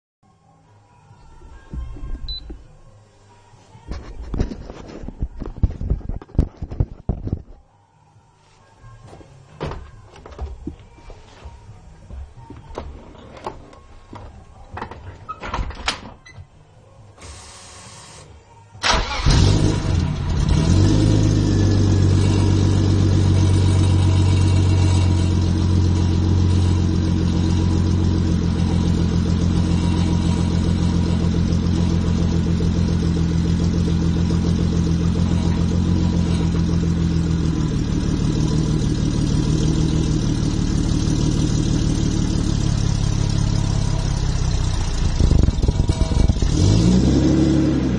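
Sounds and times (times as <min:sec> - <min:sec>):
car engine idling: 0:18.8 - 0:47.0
car engine cranking and starting: 0:18.8 - 0:47.9.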